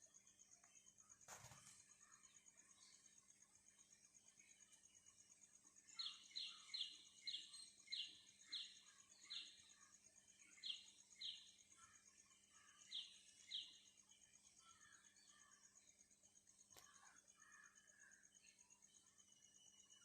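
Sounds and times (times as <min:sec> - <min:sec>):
high insect trill: 0:00.0 - 0:20.0
faint bird calls: 0:05.9 - 0:13.8, 0:16.7 - 0:18.4.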